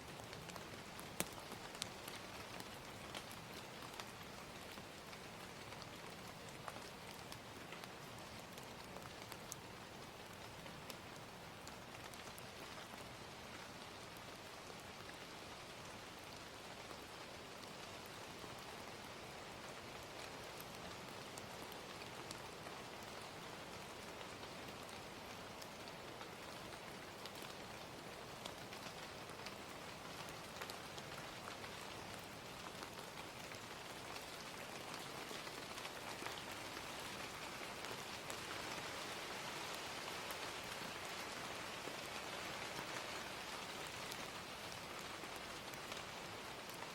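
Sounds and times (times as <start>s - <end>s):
fire crackling: 0.0s - 13.0s, 24.4s - 41.8s
gentle rain: 0.0s - 46.9s.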